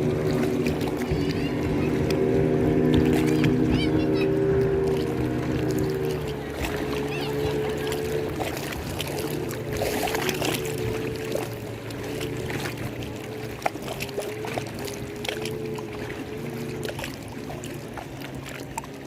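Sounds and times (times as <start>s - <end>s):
lake water lapping: 0.0s - 19.0s.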